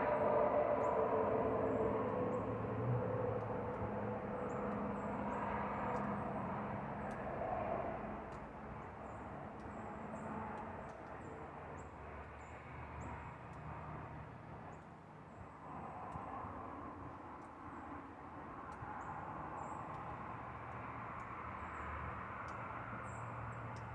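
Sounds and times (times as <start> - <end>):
distant engine rumble: 0.0 - 10.0.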